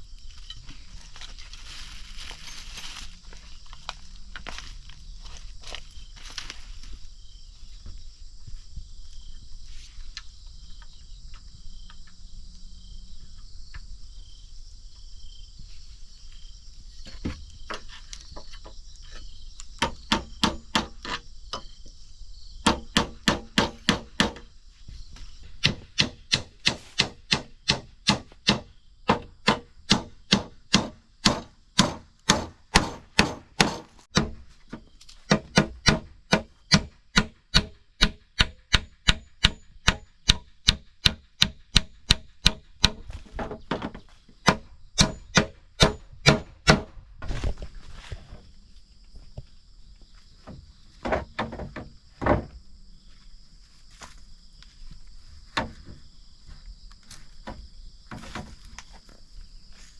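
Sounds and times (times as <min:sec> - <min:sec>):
insects chirring: 0:00.0 - 0:59.9
sharp blows on wood: 0:19.8 - 0:21.2, 0:22.6 - 0:24.5, 0:25.6 - 0:34.4, 0:35.3 - 0:47.0.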